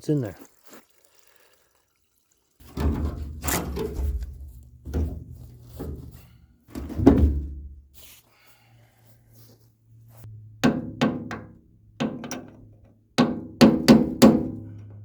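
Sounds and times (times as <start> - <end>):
knocks on steel tank: 2.6 - 6.2, 6.8 - 7.8, 10.6 - 12.5, 13.2 - 14.7.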